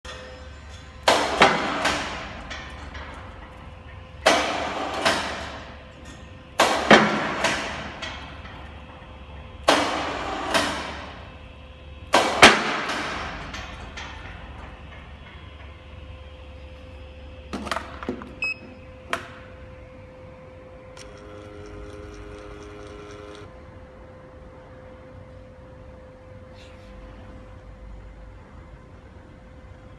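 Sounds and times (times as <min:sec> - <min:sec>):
loud metallic clanks and thuds: 0:00.1 - 0:11.4, 0:12.0 - 0:16.3.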